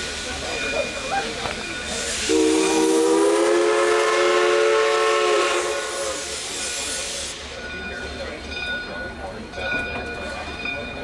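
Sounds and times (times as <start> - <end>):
steam hissing: 0.0 - 8.2
steam locomotive whistle blast: 2.0 - 7.6.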